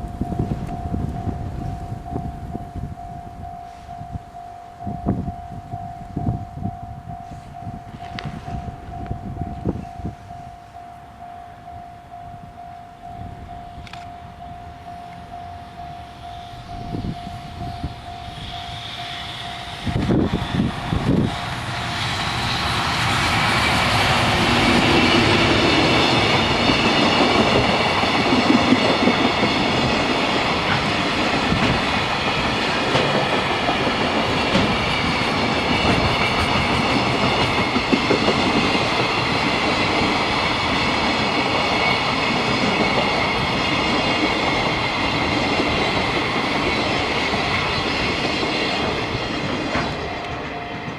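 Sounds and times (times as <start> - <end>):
high ringing from wheels: 0.0 - 50.9
train wheels clattering: 16.8 - 50.9.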